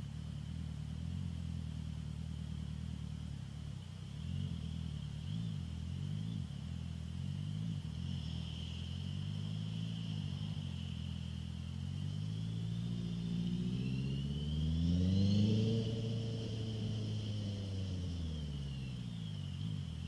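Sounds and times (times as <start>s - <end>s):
motorcycle engine revving: 4.1s - 20.0s.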